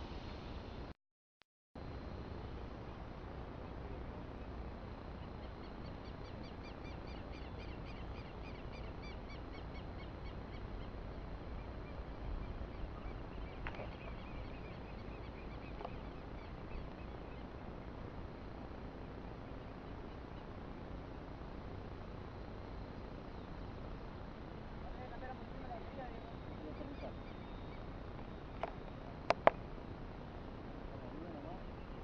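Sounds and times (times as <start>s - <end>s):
low outdoor rumble: 1.8s - 32.0s
bird chirping: 4.4s - 17.6s, 26.0s - 28.9s.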